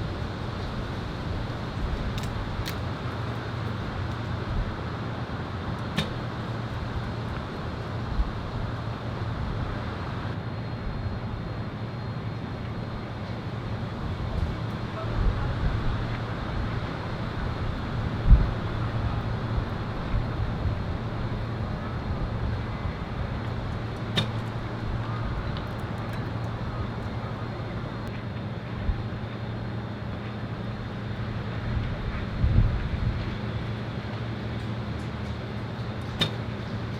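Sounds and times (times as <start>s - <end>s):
steady low hum: 0.0s - 36.9s
sharp click: 5.8s - 6.3s, 36.0s - 36.5s
dull thumps: 5.9s - 6.6s
wind buffeting microphone: 13.8s - 28.1s, 31.0s - 33.7s.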